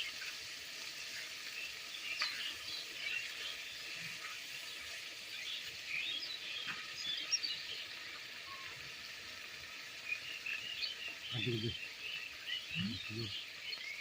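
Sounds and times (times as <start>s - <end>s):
small birds chirping: 1.1s - 14.0s
low voice: 11.3s - 11.8s, 12.7s - 13.4s.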